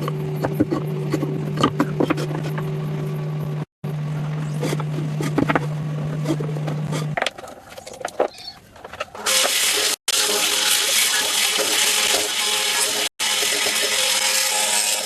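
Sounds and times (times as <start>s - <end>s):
machine hum: 0.0s - 7.3s
power tool cutting wood: 9.3s - 15.0s.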